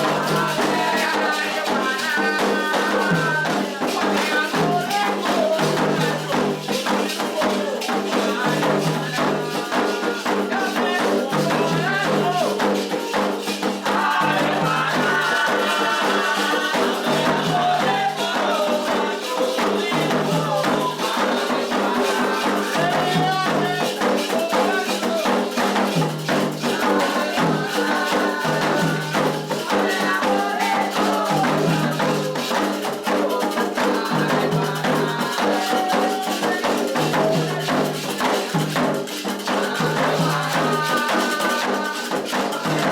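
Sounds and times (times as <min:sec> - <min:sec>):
hand drums playing rhythm: 0:00.0 - 0:42.9
rattling percussion: 0:00.0 - 0:42.9
voices singing a chant: 0:00.0 - 0:42.9.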